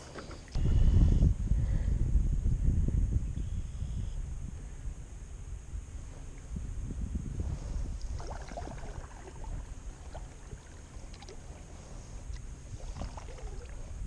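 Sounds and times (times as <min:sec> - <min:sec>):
wind on microphone: 0:00.0 - 0:14.0
paddle splashing water: 0:08.0 - 0:14.0.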